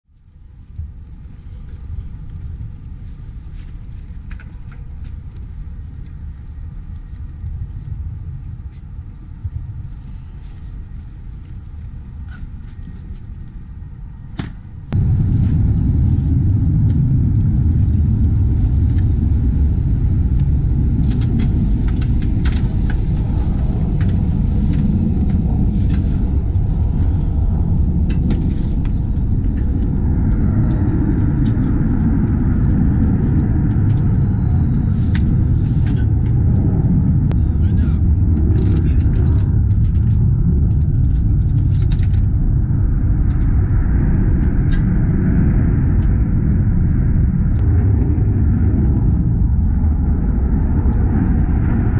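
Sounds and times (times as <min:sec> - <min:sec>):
jet engine rumbling: 0:00.4 - 0:51.9
thin high whine falling: 0:15.0 - 0:37.4.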